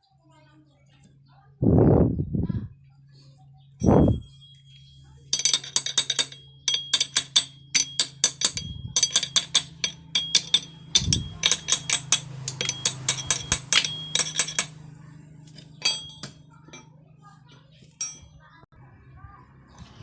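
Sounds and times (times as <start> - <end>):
steady low hum: 1.6 - 19.4
hand tools clinking on metal: 3.8 - 18.5.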